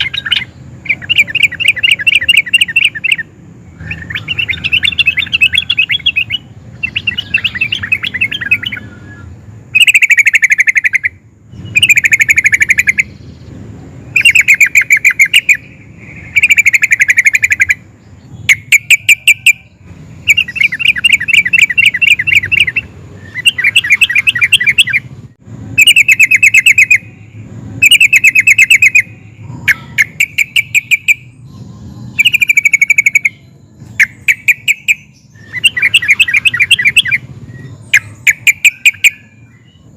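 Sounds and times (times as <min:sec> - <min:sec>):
bulbul singing bubbling phrases: 0:00.0 - 0:08.8, 0:25.8 - 0:39.2.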